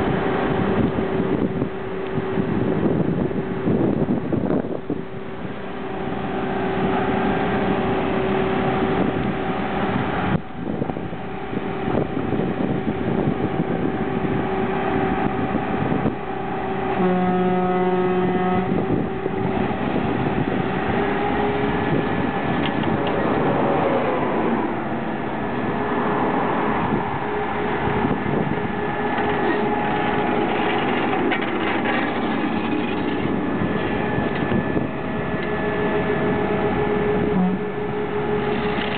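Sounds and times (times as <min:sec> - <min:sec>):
engine drone: 0:00.0 - 0:38.9
mechanical whine: 0:00.0 - 0:38.9
vehicle horn: 0:16.9 - 0:19.4, 0:35.9 - 0:38.9.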